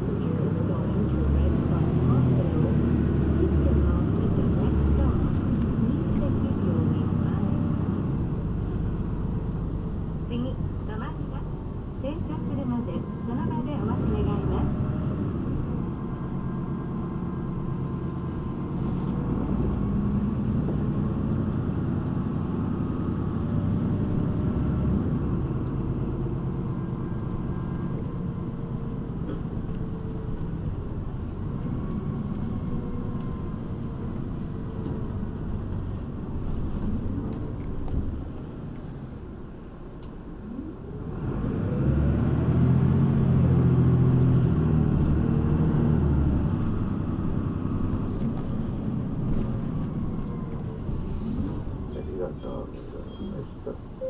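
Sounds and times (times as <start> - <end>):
bus engine rumbling: 0.0 - 54.0.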